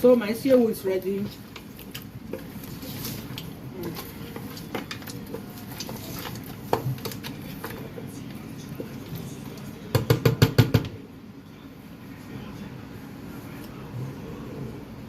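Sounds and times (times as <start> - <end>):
utensil knocking against cookware: 9.9 - 11.0.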